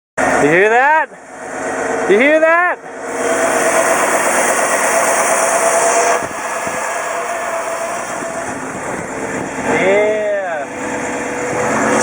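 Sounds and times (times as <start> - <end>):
car engine running with hiss: 0.2 - 12.0.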